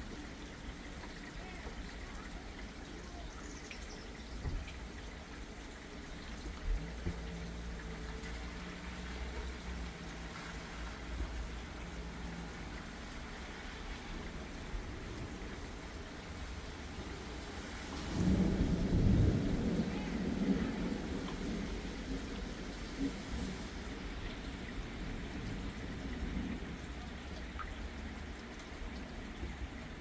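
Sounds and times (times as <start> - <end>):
light rain falling: 0.0 - 30.0
water trickling and dripping: 0.0 - 30.0.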